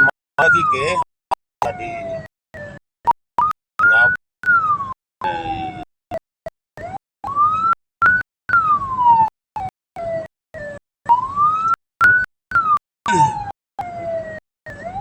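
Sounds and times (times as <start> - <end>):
vehicle siren wailing: 3.8 - 5.8, 6.8 - 15.0.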